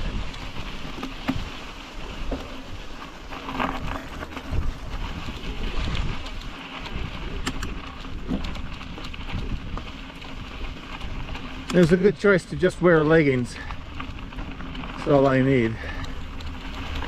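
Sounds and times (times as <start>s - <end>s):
bicycle tyre noise: 0.0s - 17.0s
bike clicks and rattles: 0.0s - 17.0s
wind buffeting microphone: 3.7s - 17.0s.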